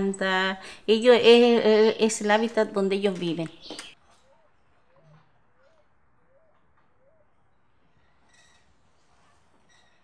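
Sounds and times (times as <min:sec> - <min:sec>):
faint bird calls: 0:03.5 - 0:10.0.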